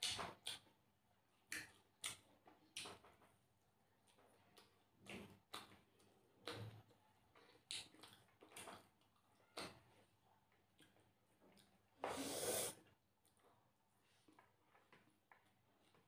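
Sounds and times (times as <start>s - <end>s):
chewing mouth sounds: 7.3s - 9.6s.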